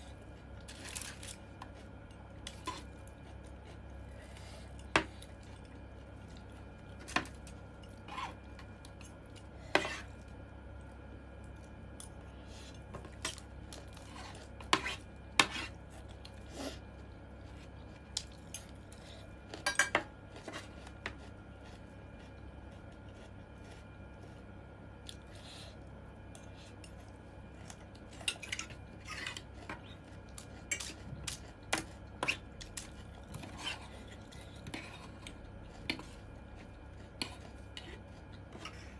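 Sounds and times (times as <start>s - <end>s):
steady low hum: 0.0s - 38.9s
cutlery clinking against dish: 19.6s - 20.0s.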